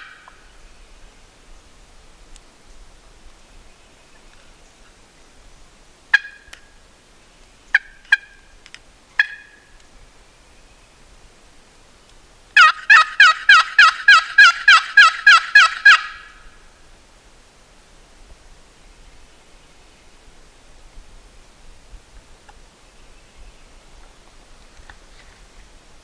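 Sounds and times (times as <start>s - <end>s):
wild turkey clucks and yelps: 6.1s - 6.8s, 7.7s - 10.0s, 12.6s - 16.6s.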